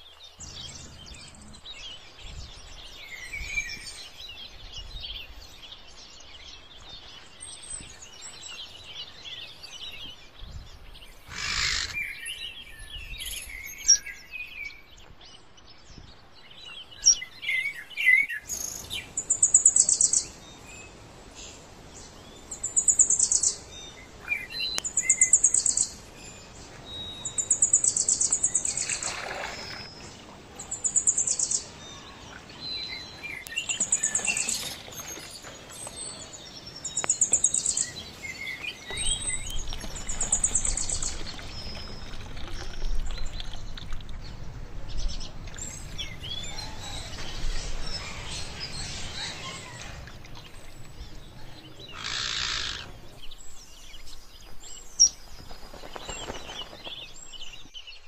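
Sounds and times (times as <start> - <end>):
birds chirping and calling: 0.0 - 5.5, 6.2 - 14.7, 21.4 - 58.0.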